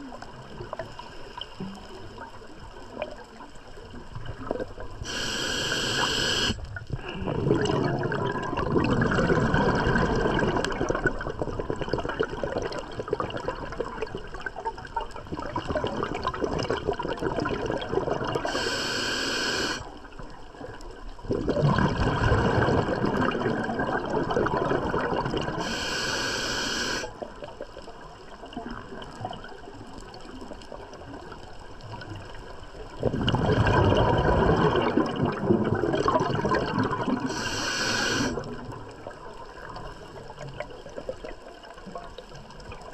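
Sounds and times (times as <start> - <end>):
regulator hissing inhalations: 5.0 - 6.6, 18.4 - 19.8, 25.6 - 27.1, 37.3 - 38.4
regulator bubbling exhalations: 5.0 - 14.0, 15.4 - 19.8, 21.3 - 27.2, 33.0 - 38.6.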